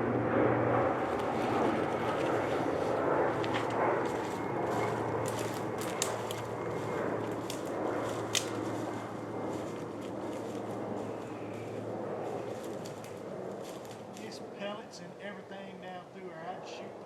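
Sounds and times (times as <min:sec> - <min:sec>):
propeller airplane drone: 0:00.0 - 0:17.0
twigs snapping underfoot: 0:01.1 - 0:14.3.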